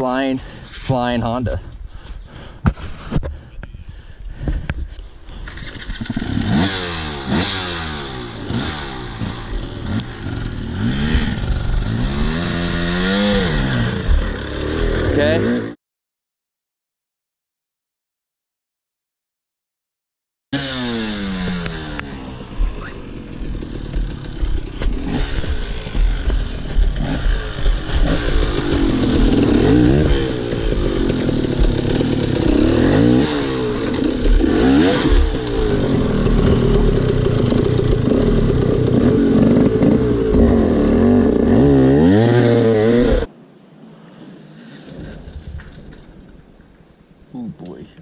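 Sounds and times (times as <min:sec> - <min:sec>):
dirt bike engine revving: 0:05.5 - 0:15.8, 0:20.6 - 0:43.3.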